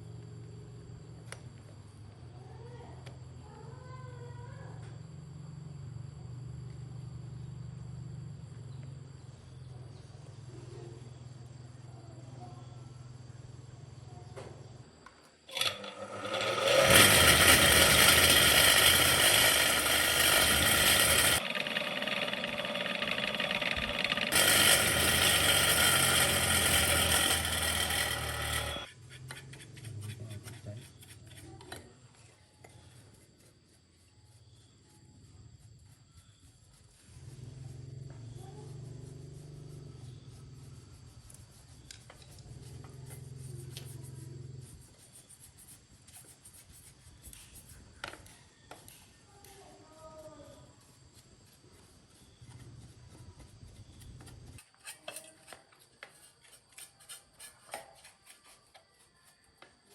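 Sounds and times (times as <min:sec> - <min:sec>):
power tool whining: 0:15.5 - 0:28.9.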